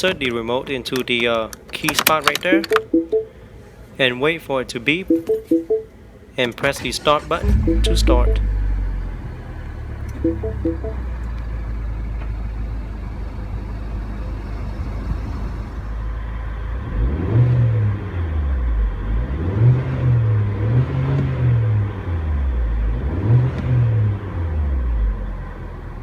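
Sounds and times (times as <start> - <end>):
car engine idling and revving: 16.4 - 25.8.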